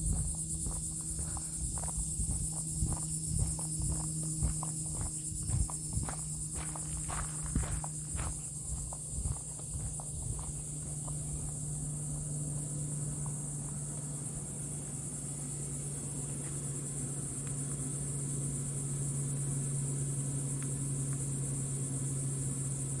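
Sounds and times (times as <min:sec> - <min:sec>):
high-pitched insect drone: 0:00.0 - 0:23.0
steady low hum: 0:00.0 - 0:23.0
faint ticks: 0:00.1 - 0:14.0, 0:17.4 - 0:17.8, 0:20.5 - 0:21.4.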